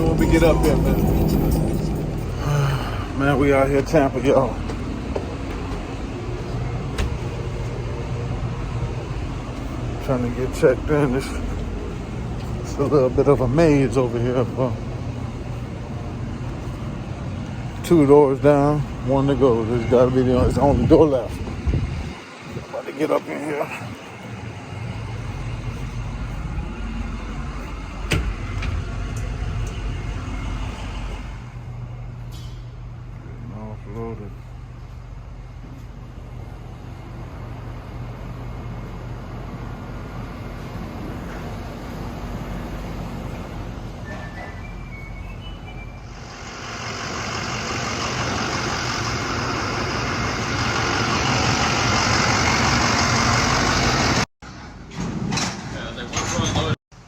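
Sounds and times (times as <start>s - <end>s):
truck engine running: 0.0s - 44.0s, 44.9s - 54.3s
road noise: 0.0s - 57.0s.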